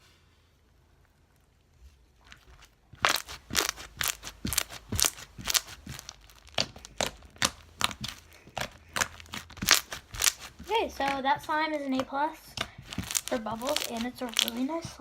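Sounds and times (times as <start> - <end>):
slime clicking and popping: 3.0 - 11.2, 12.0 - 14.9.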